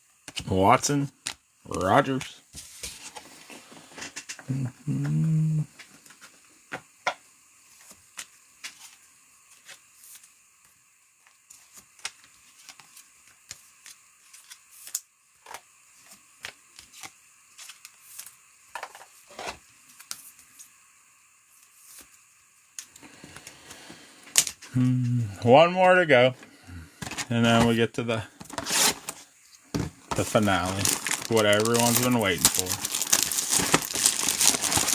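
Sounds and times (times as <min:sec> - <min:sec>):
card packaging clicks and rustles: 0:11.5 - 0:19.1, 0:29.8 - 0:34.9.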